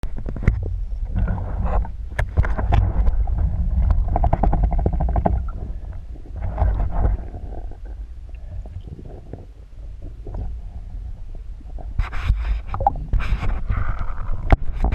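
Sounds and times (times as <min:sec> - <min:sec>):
muffled underwater rumble: 0:00.0 - 0:14.9
bubbling pulses: 0:02.6 - 0:12.0.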